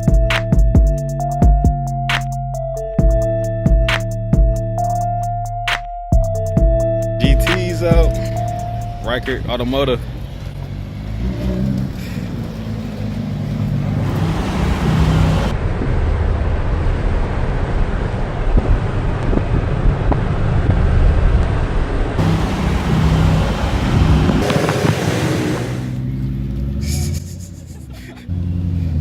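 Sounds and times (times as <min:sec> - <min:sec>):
sports car engines rumbling: 0:00.0 - 0:29.0
car driving by: 0:07.2 - 0:29.0.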